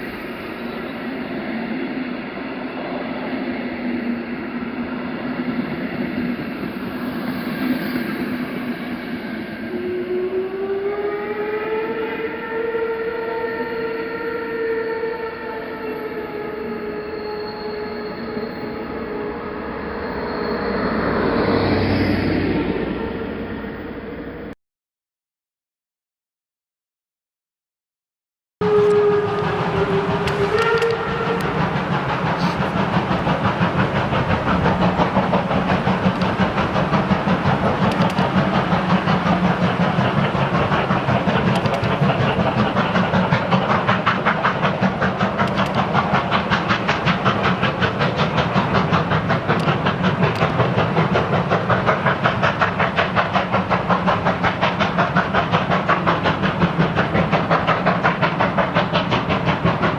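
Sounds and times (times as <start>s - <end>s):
steam locomotive chuffing: 0.0s - 11.5s, 28.6s - 59.9s
steam locomotive whistle: 7.0s - 22.2s, 28.6s - 44.1s.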